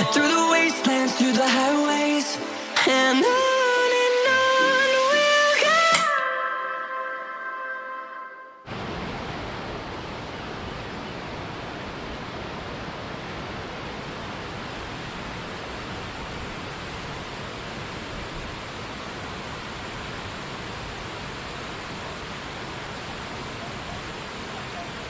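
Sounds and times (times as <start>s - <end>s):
background music: 0.0s - 8.7s
waterfall roaring: 8.7s - 25.0s.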